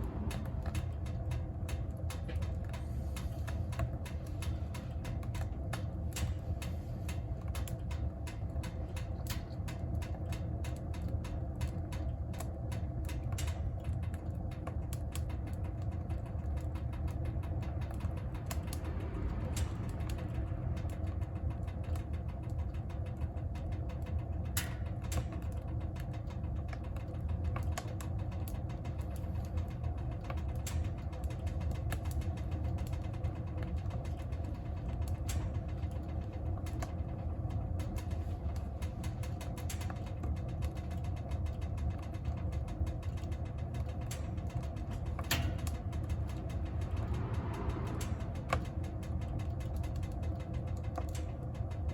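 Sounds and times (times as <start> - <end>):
burning wood crackling and popping: 0.0 - 51.9
wood fire rumbling: 0.0 - 51.9.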